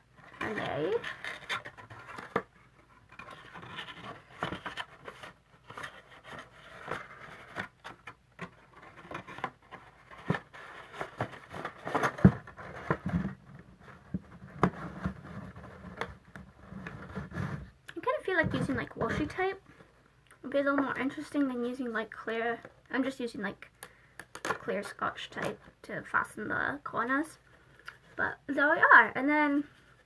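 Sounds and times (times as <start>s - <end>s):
paper rustling and scraping: 0.2s - 17.8s.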